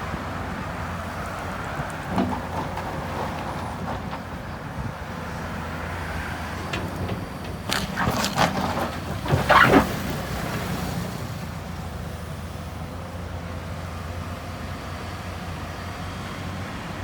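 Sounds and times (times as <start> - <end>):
diesel engine running: 0.1 - 17.0
rock and metal clanking: 6.4 - 10.6.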